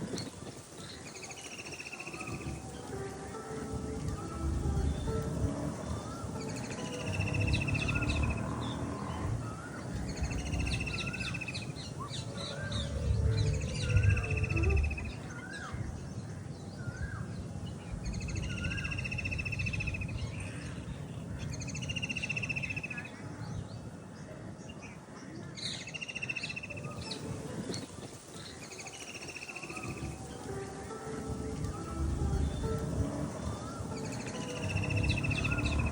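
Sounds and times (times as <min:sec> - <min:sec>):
bird chirps: 0:00.0 - 0:23.9, 0:25.8 - 0:35.9
low background rumble: 0:02.3 - 0:22.0, 0:29.9 - 0:35.9.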